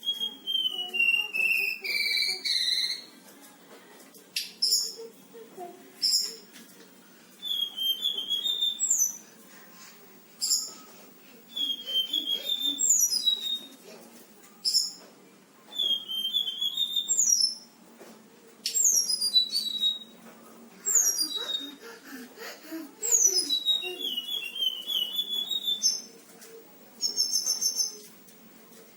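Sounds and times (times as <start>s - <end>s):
songbird singing whistles and trills: 0.0s - 3.2s, 7.4s - 9.2s, 10.4s - 10.9s, 11.5s - 13.8s, 14.6s - 15.0s, 15.7s - 17.7s, 18.6s - 20.2s, 20.8s - 21.8s, 23.0s - 26.1s, 27.0s - 28.1s.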